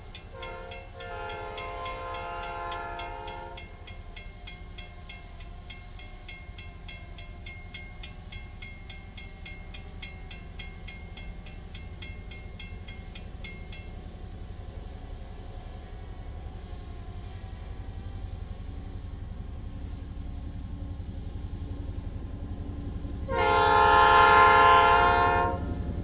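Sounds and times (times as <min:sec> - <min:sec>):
crossing bell dinging: 0:00.0 - 0:14.4
diesel train rumble: 0:00.0 - 0:26.0.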